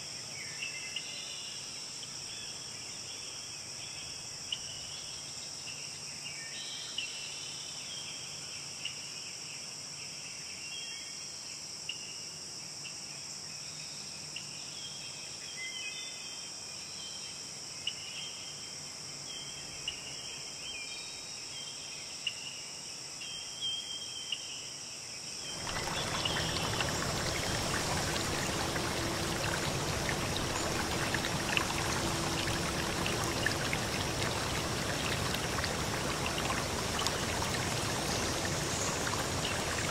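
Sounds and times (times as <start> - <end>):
insect chorus: 22.8 - 39.9
insect chirps: 25.5 - 39.9
stream water flowing: 25.5 - 39.9.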